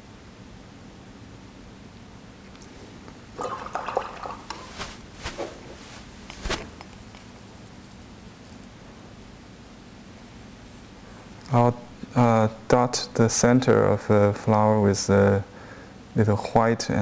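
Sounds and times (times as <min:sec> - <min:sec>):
paintbrush sloshing in water: 0:03.8 - 0:06.9.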